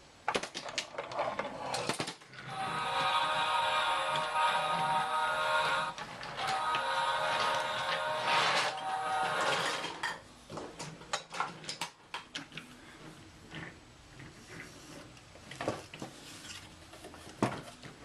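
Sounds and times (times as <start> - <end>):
toy train pieces clicking: 0.5 - 10.0
music: 2.5 - 10.0.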